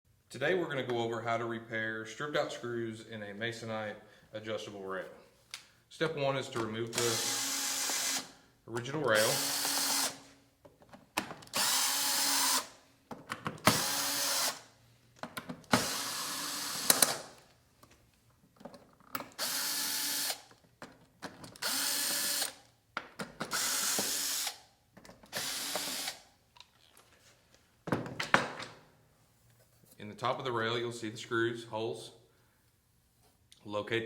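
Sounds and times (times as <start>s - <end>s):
power drill bursts: 6.9s - 8.3s, 9.2s - 10.2s, 11.5s - 12.8s, 13.7s - 14.7s, 15.8s - 17.3s, 19.4s - 20.4s, 21.6s - 22.6s, 23.5s - 24.6s, 25.3s - 26.2s.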